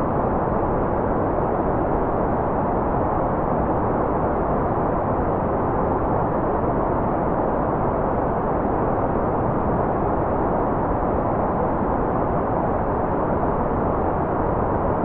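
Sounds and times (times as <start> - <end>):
muffled white noise: 0.0 - 15.0.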